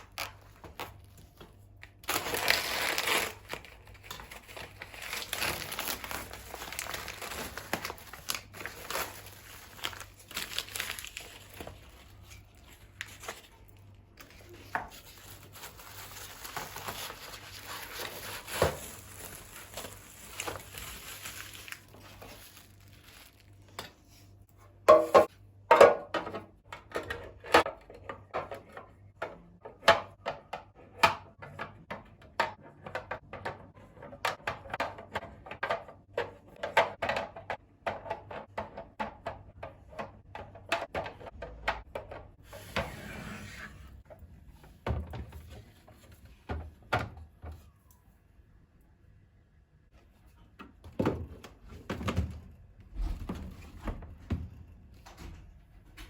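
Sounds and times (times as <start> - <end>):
household items knocking and clinking: 24.9 - 28.6.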